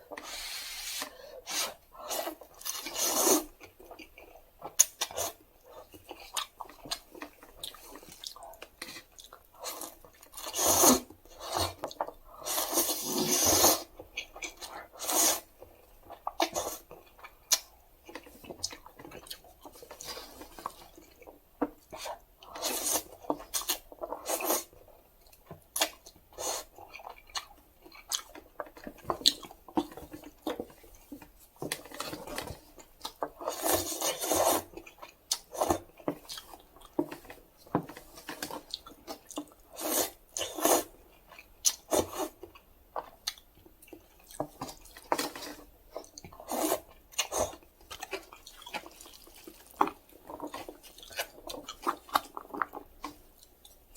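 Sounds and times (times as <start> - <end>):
slurping noodles: 0.2 - 3.5, 12.4 - 13.9, 33.4 - 34.7, 39.7 - 41.0, 46.4 - 47.6
wet chewing and mouth smacks: 25.2 - 37.4, 38.2 - 53.9.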